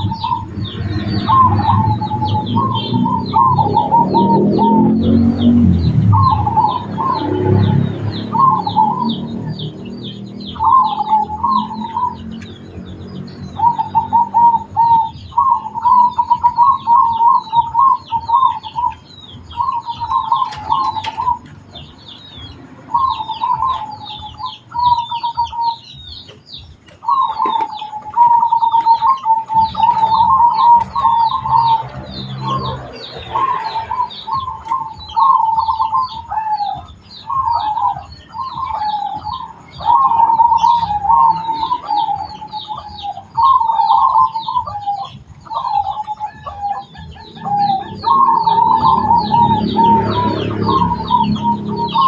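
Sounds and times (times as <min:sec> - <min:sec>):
doves cooing: 0:00.0 - 0:52.0
rapid high-pitched chirping: 0:00.0 - 0:52.0.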